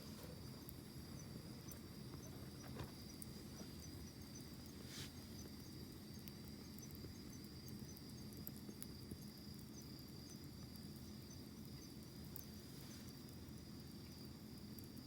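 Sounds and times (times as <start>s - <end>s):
insect trilling: 0.0s - 8.5s
campfire burning and crackling: 0.0s - 15.0s.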